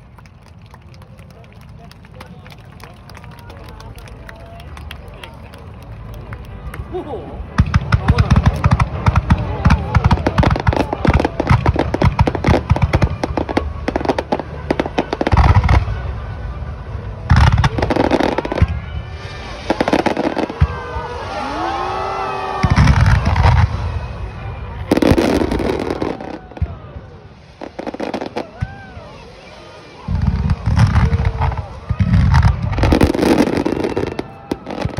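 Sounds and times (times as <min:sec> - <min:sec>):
fireworks crackling reports: 0:00.0 - 0:34.9
fireworks heavy booms: 0:07.5 - 0:34.9
fireworks whistling: 0:17.4 - 0:34.9.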